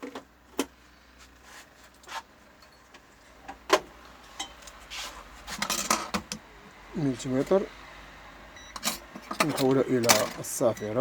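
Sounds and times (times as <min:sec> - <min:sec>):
tools clicking and knocking: 0:08.8 - 0:10.8.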